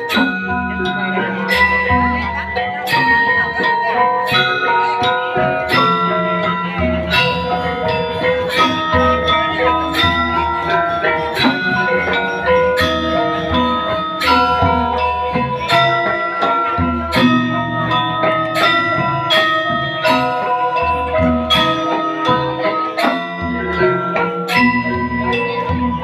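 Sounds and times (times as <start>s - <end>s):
low long-ringing tones: 0.0s - 26.0s
metallophones struck: 0.0s - 26.0s.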